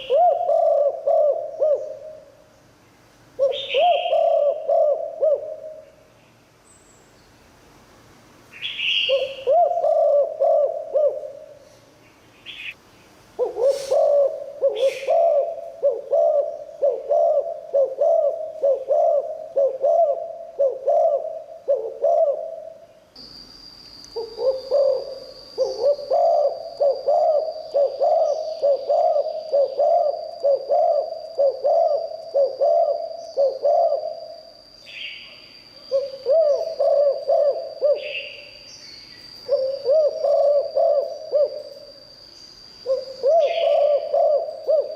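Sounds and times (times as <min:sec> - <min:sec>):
dove cooing: 0:00.0 - 0:02.5, 0:03.4 - 0:06.0, 0:08.8 - 0:11.8, 0:13.4 - 0:22.9, 0:24.2 - 0:35.1, 0:35.8 - 0:38.6, 0:39.4 - 0:41.9, 0:42.8 - 0:44.9
thin steady high tone: 0:08.0 - 0:44.9.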